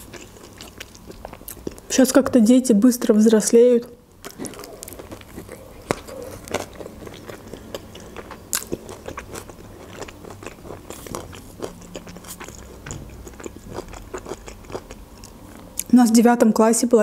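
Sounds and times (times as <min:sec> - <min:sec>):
crunchy chewing: 0:00.0 - 0:02.0, 0:04.2 - 0:15.9
biting into wrapped food: 0:04.2 - 0:15.9.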